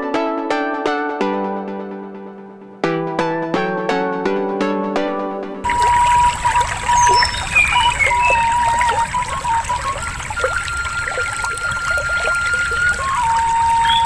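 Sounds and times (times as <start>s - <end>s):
trickling water: 5.6s - 14.0s
short high chirps: 5.7s - 12.8s.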